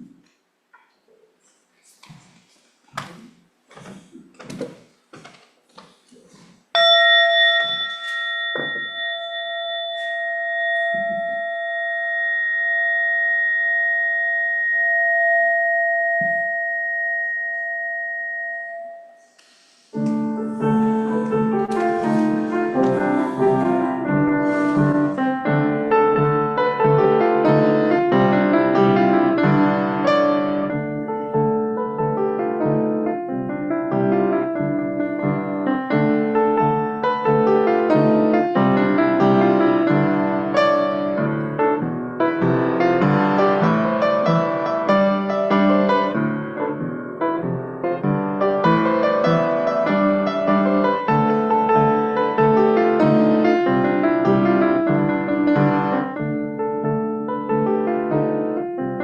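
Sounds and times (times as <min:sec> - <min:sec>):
piano music: 0:06.8 - 0:19.2, 0:19.9 - 0:59.0
bell ringing: 0:06.8 - 0:19.4.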